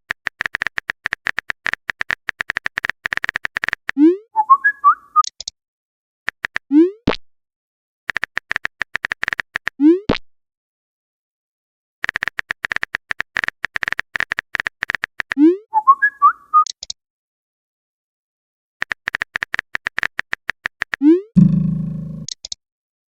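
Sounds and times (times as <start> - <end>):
fast typing clicks: 0.1 - 4.0, 8.1 - 9.7, 12.0 - 15.4, 18.8 - 21.0
short rising bloop: 21.4 - 22.3.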